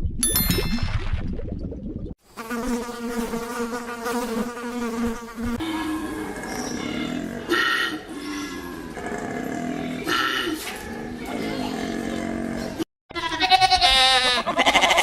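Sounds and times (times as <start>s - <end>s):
insect buzzing: 2.2s - 5.9s.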